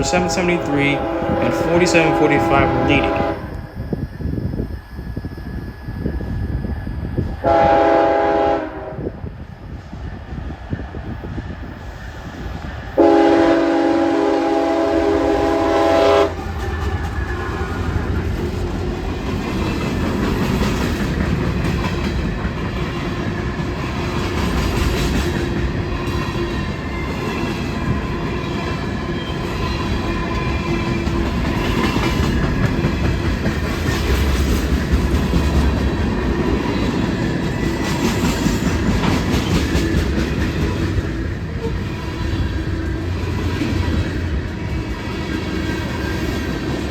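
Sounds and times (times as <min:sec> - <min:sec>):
train horn: 0:00.0 - 0:03.7, 0:07.4 - 0:09.2, 0:13.0 - 0:16.4
train rumbling on rails: 0:00.0 - 0:46.9.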